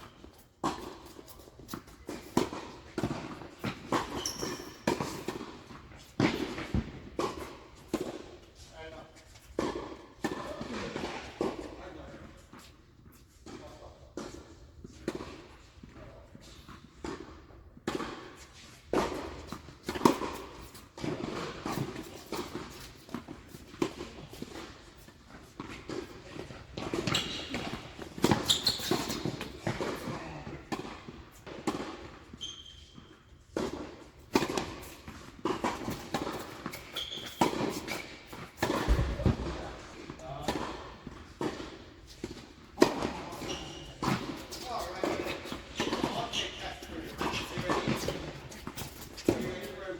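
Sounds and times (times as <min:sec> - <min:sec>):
tennis balls bouncing on court: 0:00.1 - 0:08.4, 0:09.6 - 0:11.7, 0:13.4 - 0:49.9
tennis balls struck by rackets: 0:00.6 - 0:04.2, 0:09.6 - 0:11.7, 0:17.0 - 0:32.2, 0:33.5 - 0:49.8
short high squeaks: 0:28.4 - 0:29.2, 0:36.9 - 0:37.4.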